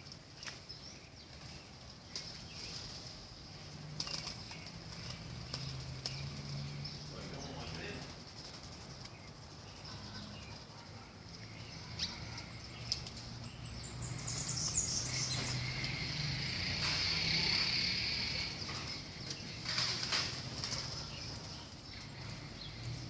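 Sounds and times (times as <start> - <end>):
high bird chirps: 11.4 - 19.7
high insect buzz: 14.1 - 18.7.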